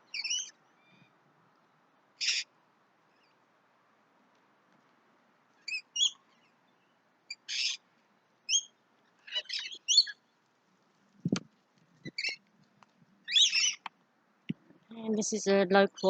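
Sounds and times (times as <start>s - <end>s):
birds chirping: 0.0s - 1.1s, 8.5s - 10.3s, 12.0s - 12.4s, 13.2s - 13.9s
screechy bird call: 2.2s - 2.5s, 7.3s - 7.8s, 9.3s - 10.2s, 13.3s - 13.9s.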